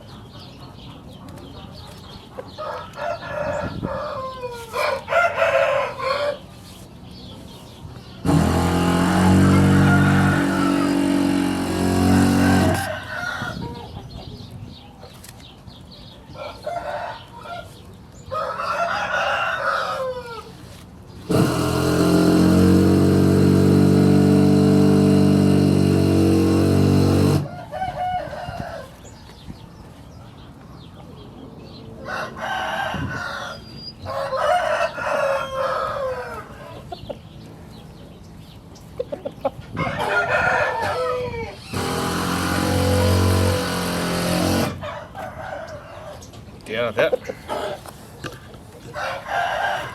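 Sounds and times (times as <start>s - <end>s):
roosters crowing: 2.5s - 6.9s, 8.1s - 14.2s, 16.2s - 29.4s, 31.8s - 37.1s, 39.5s - 46.4s, 47.3s - 49.9s
loud steady low drone: 8.2s - 12.9s, 21.3s - 27.5s.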